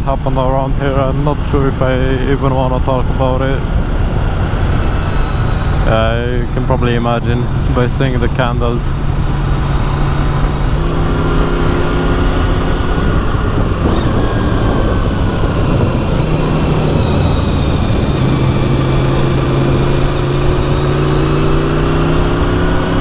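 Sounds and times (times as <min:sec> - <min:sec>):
motorcycle engine running: 0:00.0 - 0:23.0
road noise: 0:00.0 - 0:23.0
wind noise: 0:00.0 - 0:23.0.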